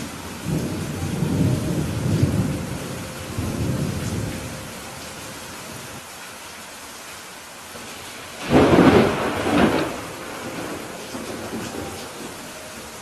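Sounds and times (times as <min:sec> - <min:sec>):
thunder rumble: 0:00.0 - 0:05.0, 0:07.9 - 0:13.0
rain hiss: 0:00.0 - 0:13.0.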